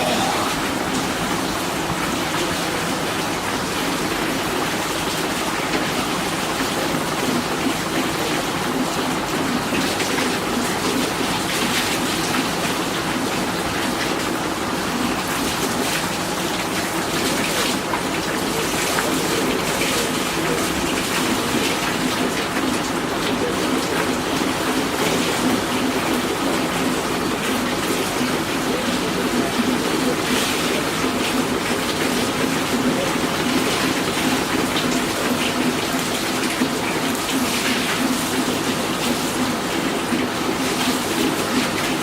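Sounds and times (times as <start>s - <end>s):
water rushing: 0.0s - 7.8s.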